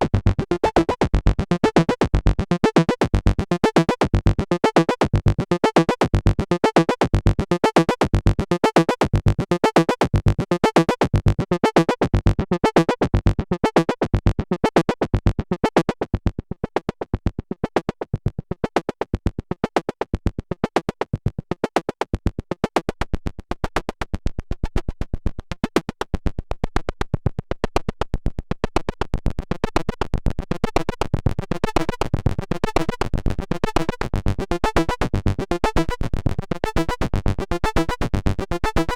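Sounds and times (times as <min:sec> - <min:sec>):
synthesizer sequenced pattern: 0:00.2 - 0:16.0, 0:31.7 - 0:38.9.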